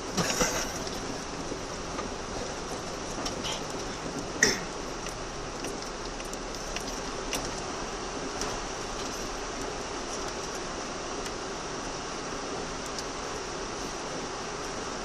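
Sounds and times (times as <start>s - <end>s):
vehicle driving noise: 0.0s - 15.0s
water washing: 0.0s - 15.0s
light ticks against vehicle body: 0.8s - 11.4s, 12.8s - 14.0s.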